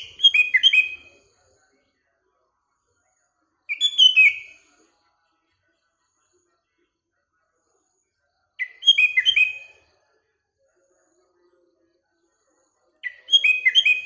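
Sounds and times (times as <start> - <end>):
bird singing whistled notes: 0.0 - 1.1, 3.7 - 4.6, 8.6 - 9.8, 13.0 - 14.0.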